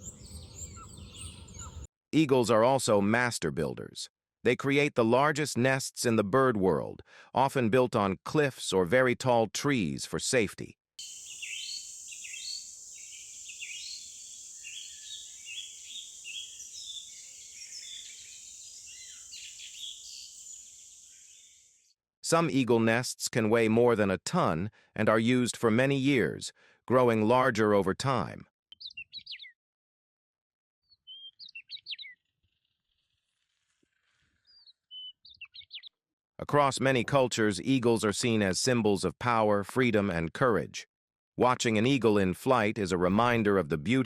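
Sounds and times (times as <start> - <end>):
birds chirping and singing: 0.0 - 1.9, 11.0 - 21.8, 28.8 - 29.5, 31.1 - 32.2, 34.5 - 35.9
steady high hiss: 11.0 - 21.6.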